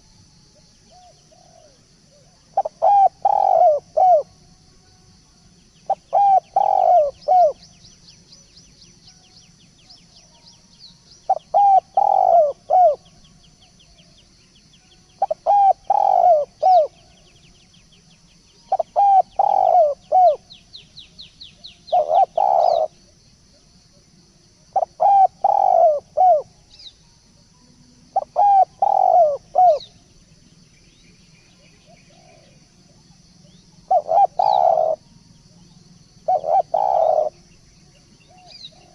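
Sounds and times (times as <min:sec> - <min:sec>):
small birds chirping and trilling: 0:00.6 - 0:04.3, 0:05.6 - 0:24.1, 0:24.7 - 0:27.5, 0:28.2 - 0:38.9
dove cooing: 0:00.6 - 0:04.4, 0:05.9 - 0:07.7, 0:11.3 - 0:13.1, 0:15.2 - 0:17.2, 0:18.6 - 0:20.5, 0:21.8 - 0:23.2, 0:24.7 - 0:26.7, 0:28.1 - 0:30.0, 0:31.6 - 0:35.6, 0:36.2 - 0:37.5, 0:38.2 - 0:38.9.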